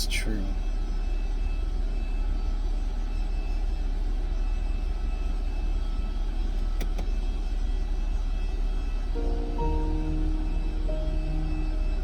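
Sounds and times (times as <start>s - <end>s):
steady low rumble: 9.1s - 12.0s.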